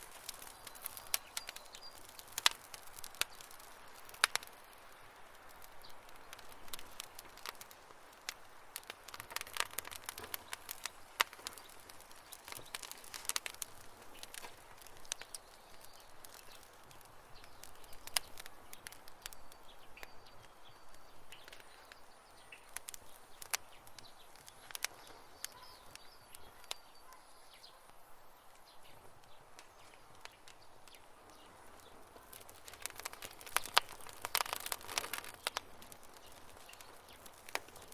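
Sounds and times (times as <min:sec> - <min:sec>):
campfire crackling: 0:00.0 - 0:37.9
soft hiss: 0:00.0 - 0:37.9
faint high chirps: 0:19.3 - 0:27.9.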